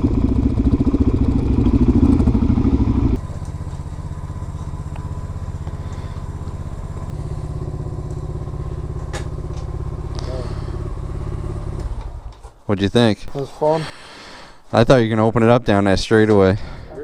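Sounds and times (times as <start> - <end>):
motorcycle engine: 0.0 - 12.6.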